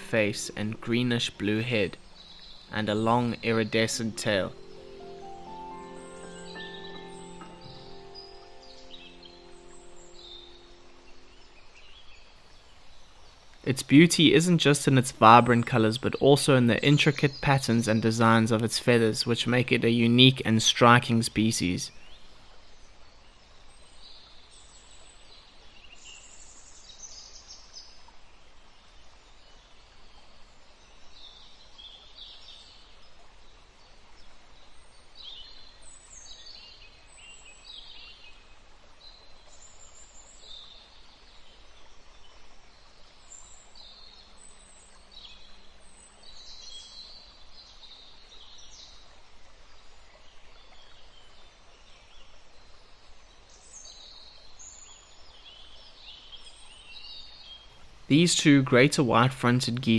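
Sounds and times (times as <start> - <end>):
small birds chirping: 0.0 - 22.4.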